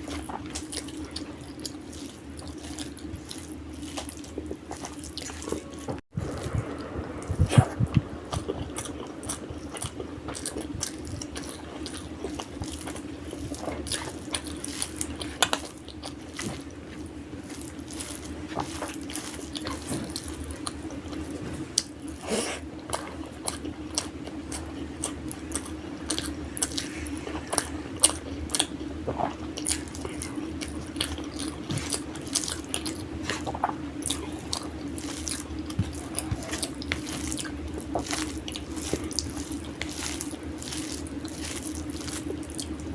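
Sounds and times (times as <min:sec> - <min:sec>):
chewing with mouth clicks: 0:00.0 - 0:42.9
steady low hum: 0:00.0 - 0:42.9.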